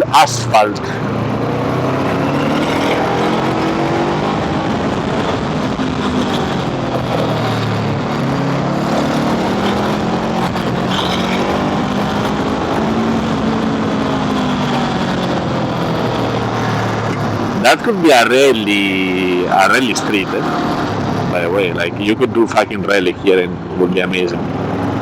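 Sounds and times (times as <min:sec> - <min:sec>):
scooter engine running: 0:00.7 - 0:18.0.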